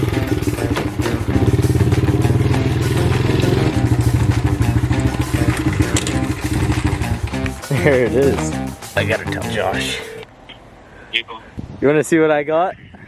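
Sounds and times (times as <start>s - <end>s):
small motorbike engine running: 0.0s - 7.7s.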